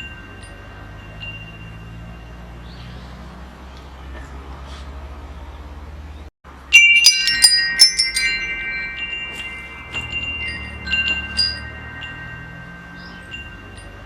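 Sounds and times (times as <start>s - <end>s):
metal wind chimes ringing: 0.0s - 3.6s, 6.5s - 14.0s.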